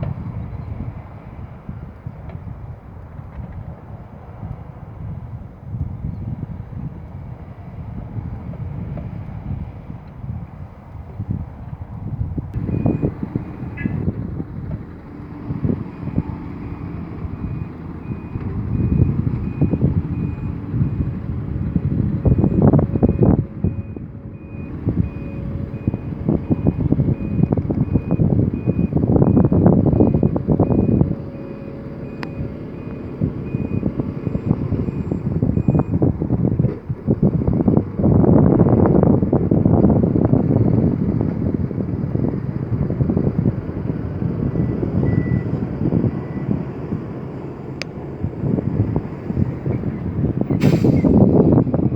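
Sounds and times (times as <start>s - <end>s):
heavy diesel machinery running: 0.0s - 51.9s
reversing alarm beeping: 12.6s - 14.0s, 15.8s - 21.2s, 22.2s - 36.0s, 44.6s - 46.6s.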